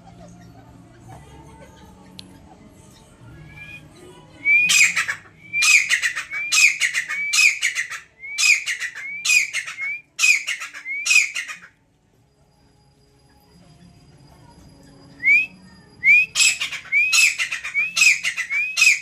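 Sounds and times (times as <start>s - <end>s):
francolin calling: 4.4s - 11.7s, 15.2s - 19.0s.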